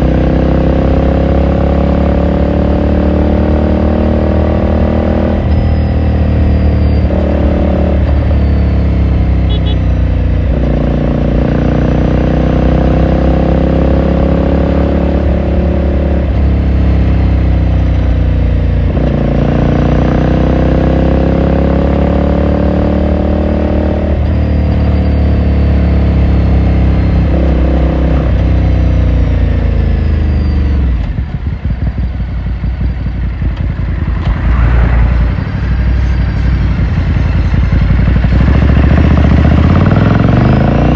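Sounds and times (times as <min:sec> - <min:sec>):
motorcycle engine shifting gears: 0:00.0 - 0:40.9.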